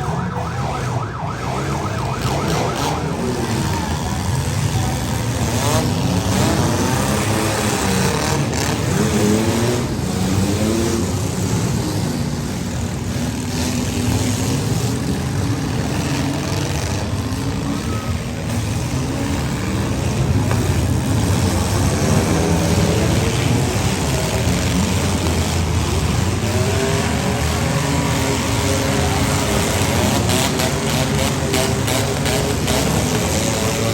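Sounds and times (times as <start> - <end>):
car engines revving: 0.0 - 33.9.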